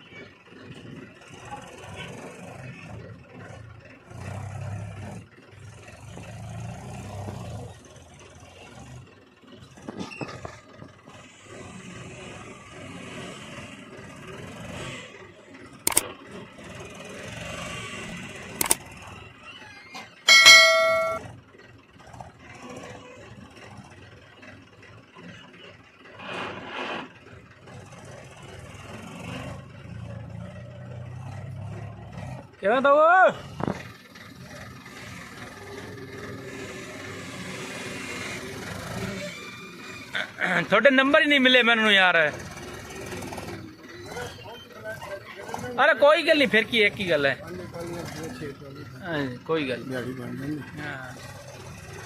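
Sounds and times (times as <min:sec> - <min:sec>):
loud pitched tone: 0:20.3 - 0:21.2
metallic clanks and scrapes: 0:26.2 - 0:27.2
machinery engine running unevenly: 0:33.4 - 0:41.6, 0:42.2 - 0:52.0.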